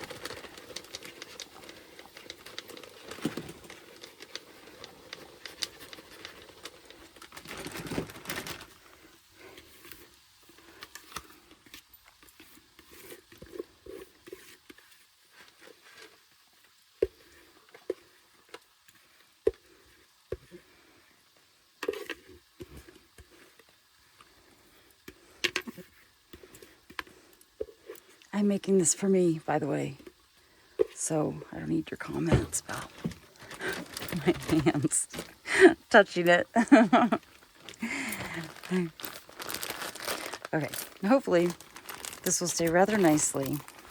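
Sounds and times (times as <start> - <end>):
plastic bag crinkling: 0.0 - 10.0, 31.7 - 43.9.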